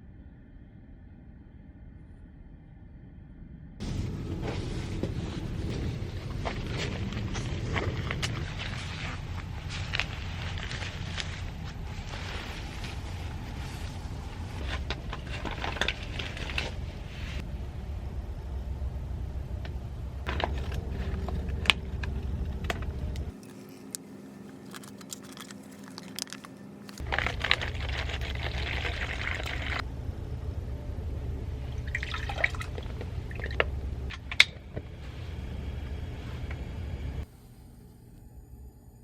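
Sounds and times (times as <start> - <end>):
steady low rumble: 0.0 - 39.0
clicks and knocks of handling: 20.3 - 27.3
liquid being poured: 24.6 - 29.8, 31.6 - 33.8.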